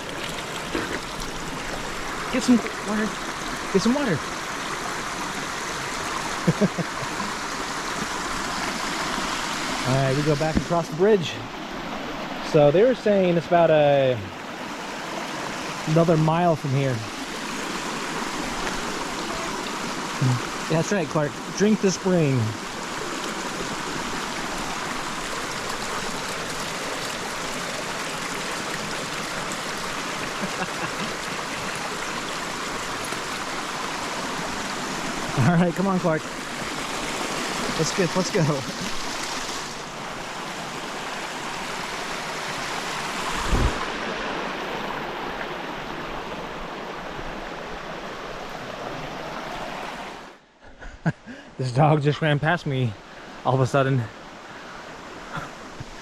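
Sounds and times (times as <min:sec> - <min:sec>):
water rushing from spring and creek: 0:00.0 - 0:56.0
low thump: 0:43.4 - 0:43.9.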